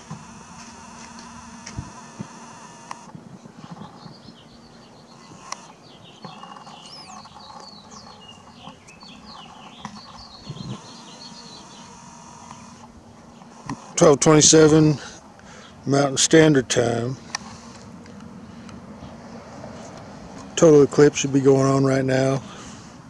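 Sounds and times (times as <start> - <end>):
birds chirping: 0.0 - 19.2
faint steady hum: 0.0 - 20.8
bird whistle rising and falling: 5.6 - 8.1.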